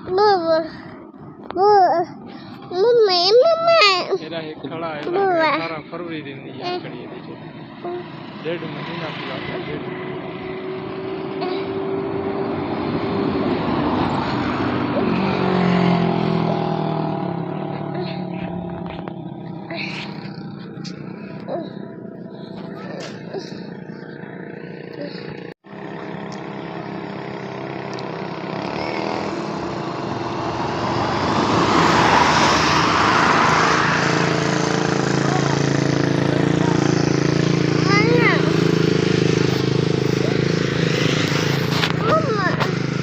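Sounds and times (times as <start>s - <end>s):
road noise: 0.0s - 43.0s
truck diesel engine running: 13.2s - 32.2s, 32.8s - 43.0s.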